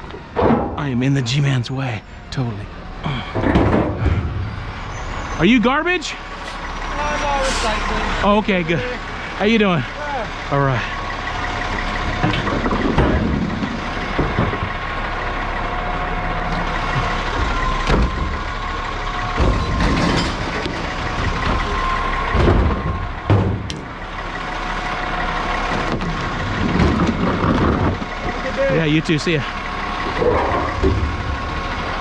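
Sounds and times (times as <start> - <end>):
garbage truck engine idling: 0.0 - 32.0
sharp metal clanks and knocks: 0.4 - 0.9, 6.1 - 8.0, 19.4 - 22.7.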